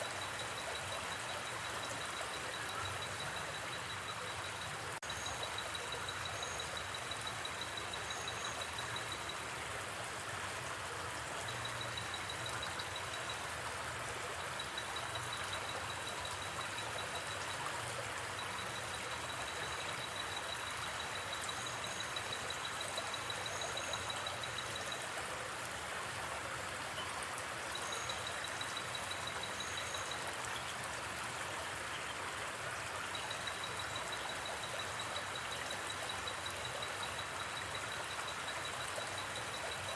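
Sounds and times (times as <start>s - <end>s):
insect trill: 0.0s - 9.4s, 14.4s - 25.1s, 27.7s - 30.2s
river flowing: 0.0s - 39.9s.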